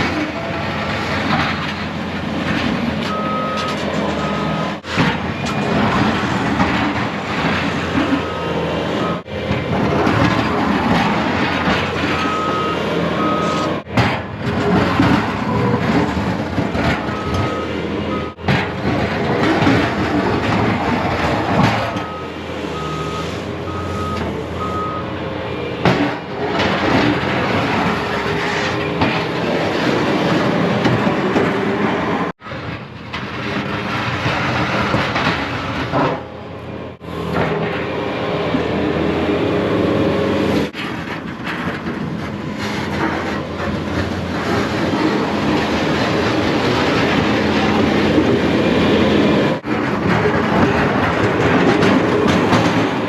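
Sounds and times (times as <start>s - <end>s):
plow blade scraping through snow: 0.0s - 32.6s, 37.0s - 53.0s
plow truck engine running: 0.0s - 53.0s
short beeps: 12.2s - 13.7s.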